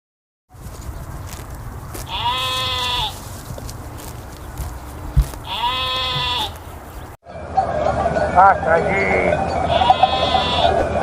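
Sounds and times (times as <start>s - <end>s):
sheep bleating: 2.1s - 3.2s, 5.4s - 6.6s, 9.7s - 10.9s
short thump: 5.1s - 6.4s.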